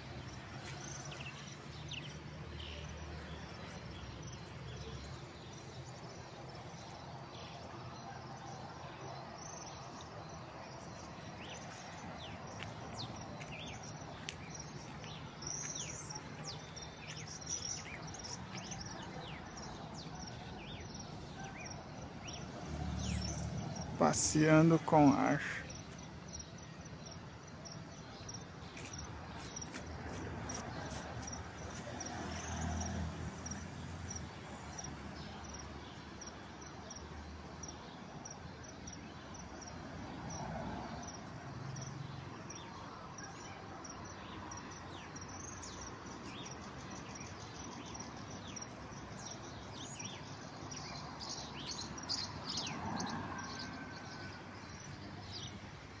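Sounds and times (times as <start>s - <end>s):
steady outdoor hiss: 0.0s - 56.0s
small birds chirping: 9.1s - 32.6s, 43.8s - 53.7s, 54.6s - 55.6s.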